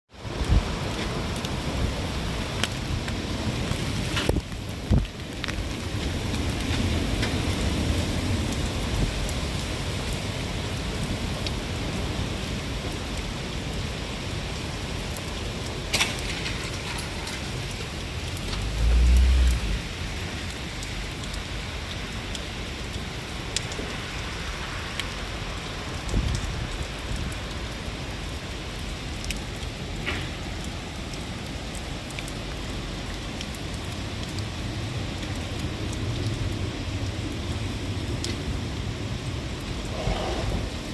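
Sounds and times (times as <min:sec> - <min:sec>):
heavy rain falling: 0:00.1 - 0:40.9
loud low rumble: 0:18.5 - 0:19.9.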